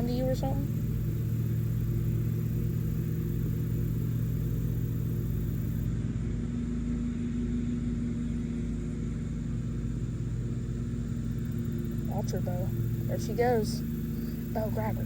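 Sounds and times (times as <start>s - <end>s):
motor humming: 0.0s - 5.9s, 9.1s - 15.0s.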